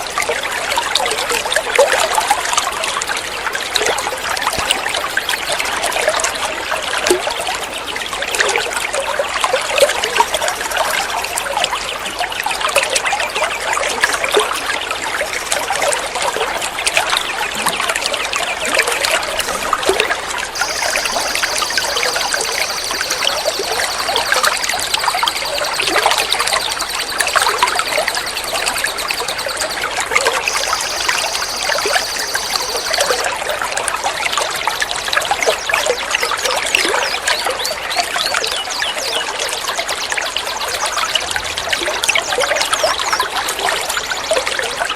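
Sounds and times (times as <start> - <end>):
high steady trill: 20.6 - 33.3.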